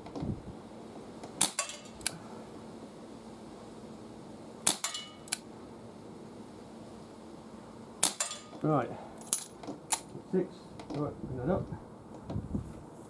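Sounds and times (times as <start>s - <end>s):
air revolver shot crack: 1.4s - 1.9s, 4.7s - 5.1s, 8.0s - 8.5s.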